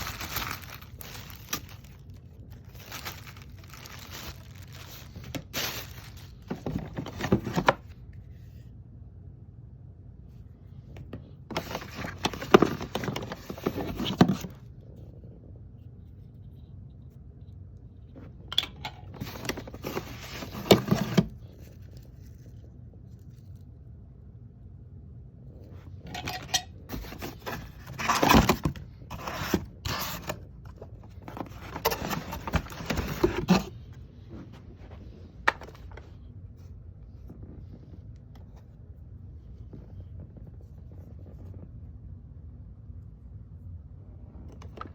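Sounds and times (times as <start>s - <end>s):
packaging scraping and rustling: 0.0s - 8.0s, 11.5s - 14.6s, 19.0s - 23.6s, 25.6s - 36.0s.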